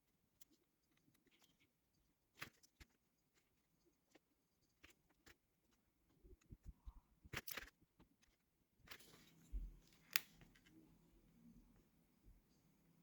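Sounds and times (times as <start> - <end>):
faint low hum: 8.9 - 13.0.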